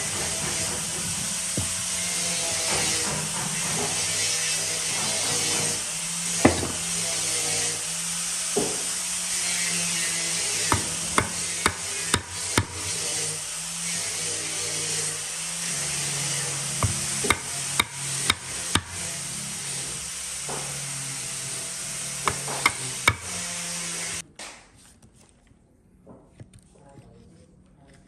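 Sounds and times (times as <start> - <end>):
machine hum and hiss: 0.0 - 24.2
hammer knocking on wood: 0.2 - 3.9, 6.4 - 6.9, 8.5 - 8.9, 10.7 - 12.8, 16.8 - 19.0, 22.3 - 23.3.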